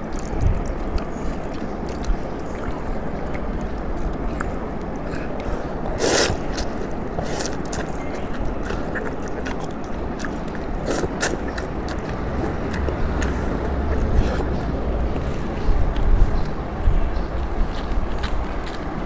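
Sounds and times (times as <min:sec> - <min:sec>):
wet mouth clicks: 0:00.0 - 0:16.6
chewing: 0:00.0 - 0:19.0
noodle slurping: 0:01.0 - 0:14.7.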